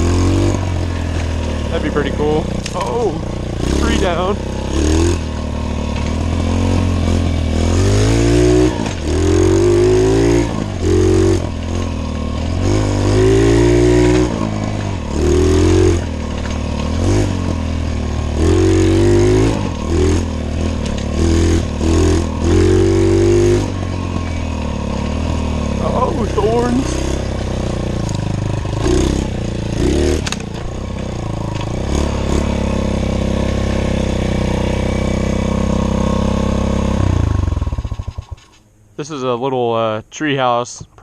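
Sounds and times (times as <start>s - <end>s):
small motorbike engine revving: 0.0s - 38.6s.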